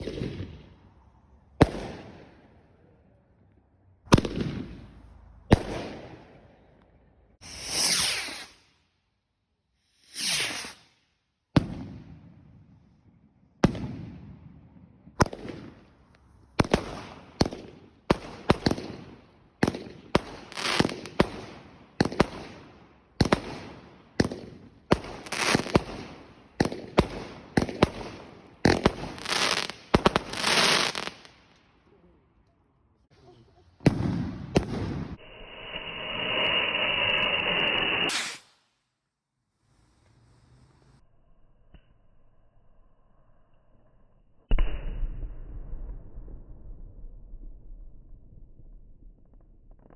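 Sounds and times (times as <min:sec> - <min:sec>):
fireworks bangs with crackle: 0:00.0 - 0:00.8, 0:01.5 - 0:02.6, 0:04.1 - 0:06.5, 0:11.5 - 0:12.5, 0:13.6 - 0:14.6, 0:15.2 - 0:31.4, 0:33.8 - 0:35.2
fireworks rushing hisses: 0:07.4 - 0:08.8, 0:09.8 - 0:11.0, 0:25.0 - 0:31.3, 0:34.6 - 0:38.8, 0:39.4 - 0:41.0.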